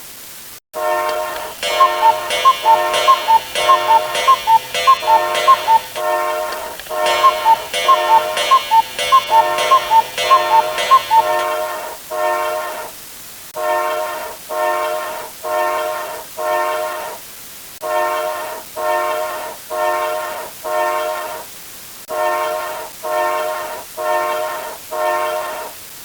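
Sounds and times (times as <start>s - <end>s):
horn-like blasts: 0.8s - 13.0s, 17.8s - 21.4s, 22.1s - 25.7s
electronic alarm clock beeping: 1.0s - 12.7s.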